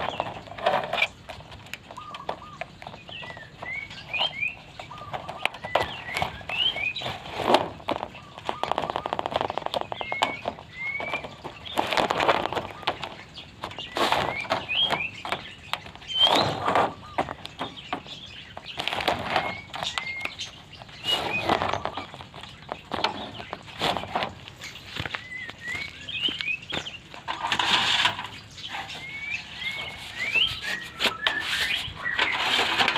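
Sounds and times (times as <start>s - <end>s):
harsh scratchy bird notes: 2.1s - 32.9s
bird singing whistles: 5.6s - 7.1s, 10.0s - 11.4s, 16.0s - 17.2s, 19.4s - 22.1s, 25.2s - 26.9s, 28.9s - 32.8s.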